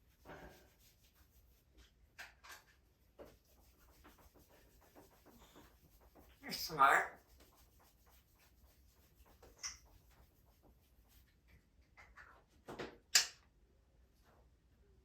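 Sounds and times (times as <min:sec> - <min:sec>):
parrots scratching and clicking: 0:00.2 - 0:13.4.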